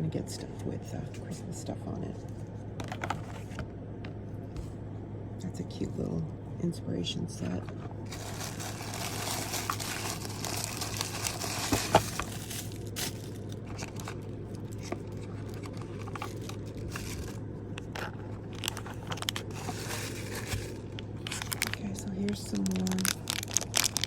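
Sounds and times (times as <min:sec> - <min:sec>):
packaging crinkling and rustling: 0:08.0 - 0:24.0.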